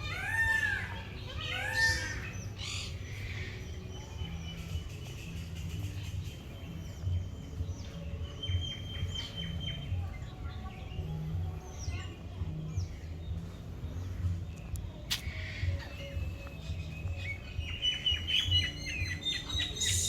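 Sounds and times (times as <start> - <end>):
birds chirping and calling: 0.0 - 20.0
bird whistles: 15.2 - 20.0.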